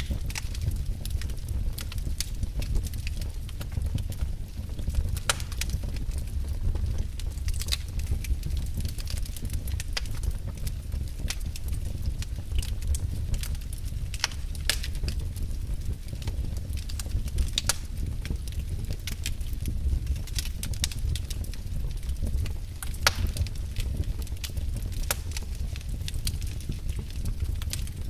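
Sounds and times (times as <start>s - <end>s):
fire crackling and popping: 0.0s - 28.0s
low sound of flames: 0.0s - 28.0s.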